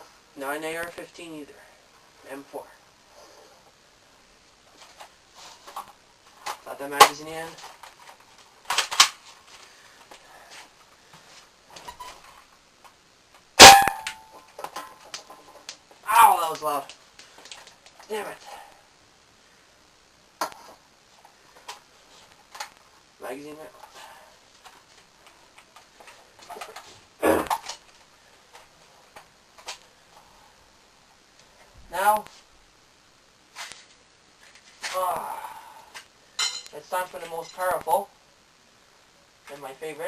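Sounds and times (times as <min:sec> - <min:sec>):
airsoft rifle shot: 0:13.6 - 0:14.3.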